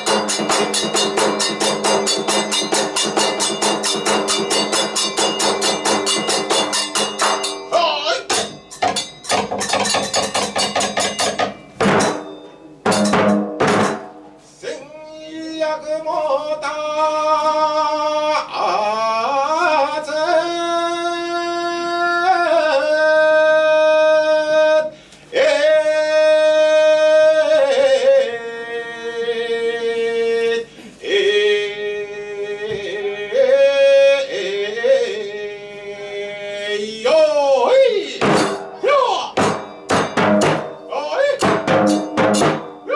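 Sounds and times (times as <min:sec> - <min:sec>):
drum strikes: 0:00.0 - 0:14.5, 0:38.2 - 0:42.9
percussion: 0:00.0 - 0:14.5, 0:38.2 - 0:42.9.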